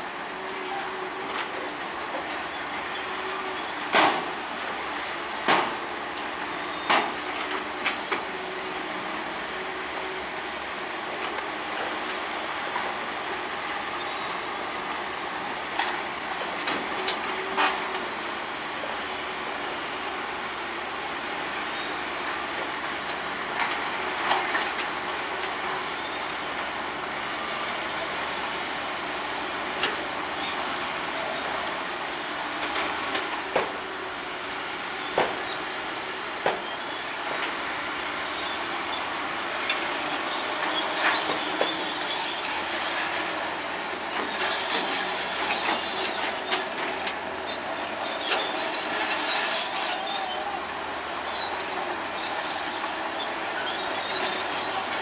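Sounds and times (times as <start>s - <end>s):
bulldozer engine running: 0.0s - 55.0s
steel tracks clanking and squealing: 0.0s - 55.0s.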